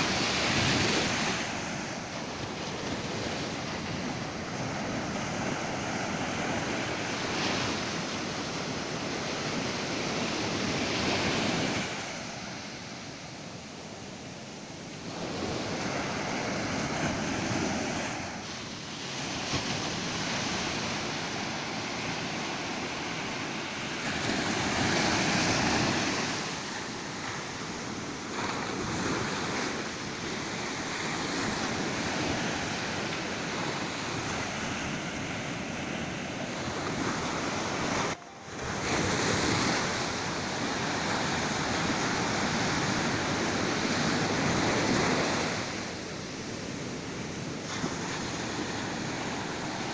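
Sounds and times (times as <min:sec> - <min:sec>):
ocean surf breaking on beach: 0:00.0 - 0:49.9.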